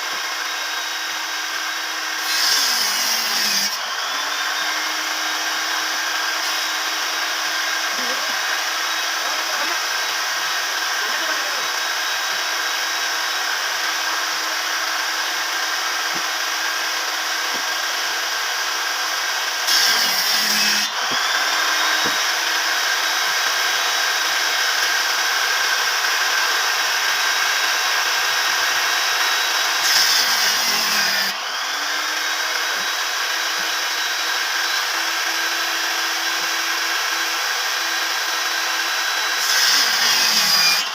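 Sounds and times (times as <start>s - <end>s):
power tool motor whining: 0.0s - 40.9s.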